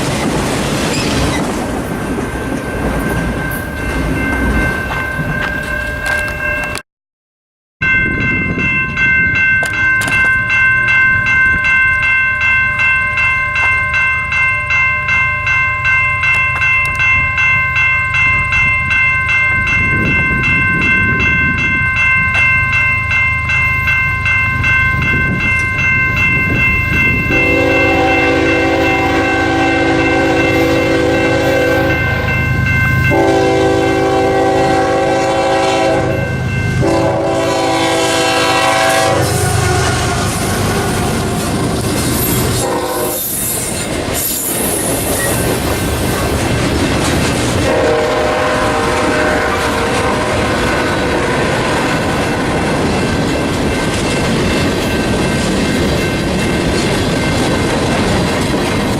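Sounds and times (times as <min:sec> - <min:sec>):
passing train rumble: 0:00.0 - 0:06.8, 0:07.8 - 0:58.9
crossing bell ringing: 0:01.0 - 0:06.8, 0:07.8 - 0:58.9
locomotive air horn blast: 0:27.3 - 0:31.9, 0:33.1 - 0:40.9, 0:42.6 - 0:43.4, 0:47.6 - 0:50.6.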